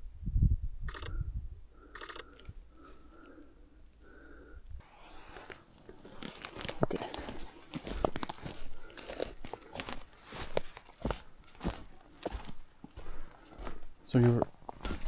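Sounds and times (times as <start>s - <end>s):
crunching and rustling: 4.8s - 15.0s.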